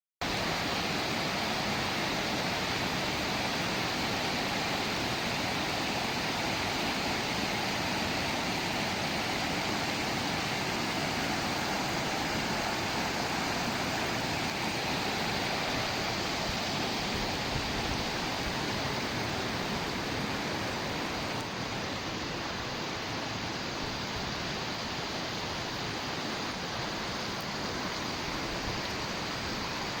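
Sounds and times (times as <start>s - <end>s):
water flowing: 0.2s - 30.0s.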